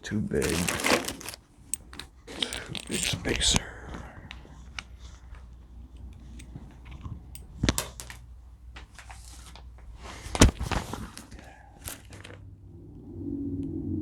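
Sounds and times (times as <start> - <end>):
metal hardware knocking and clinking: 0.4 - 3.4.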